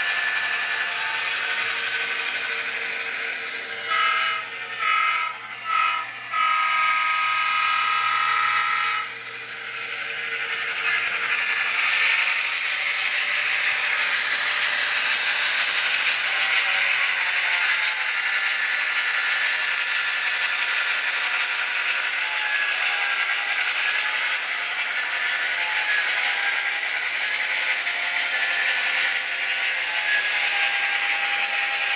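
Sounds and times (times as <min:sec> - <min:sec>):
model train horn blasts: 0:03.8 - 0:09.1.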